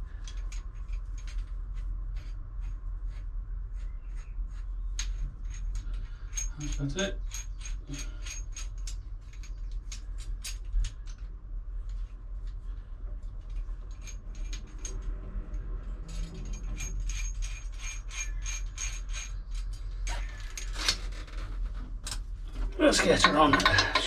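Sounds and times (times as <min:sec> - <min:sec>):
steady low hum: 0:00.0 - 0:24.0
metal wrench clicking and rattling: 0:05.0 - 0:11.2, 0:13.5 - 0:21.0, 0:23.0 - 0:24.0.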